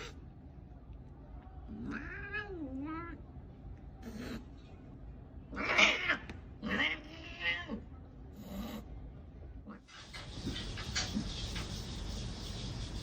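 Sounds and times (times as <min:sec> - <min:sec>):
cat yowling: 0:05.6 - 0:07.8.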